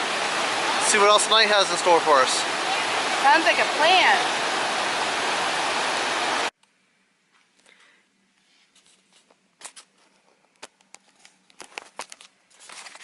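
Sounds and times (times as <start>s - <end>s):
rustles of handling: 8.4s - 13.0s.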